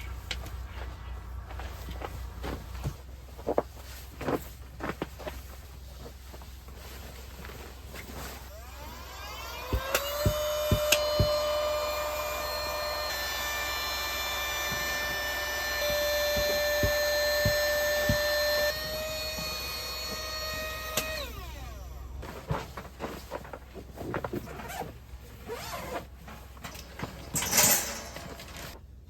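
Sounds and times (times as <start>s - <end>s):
electric air pump whining: 8.4s - 22.2s.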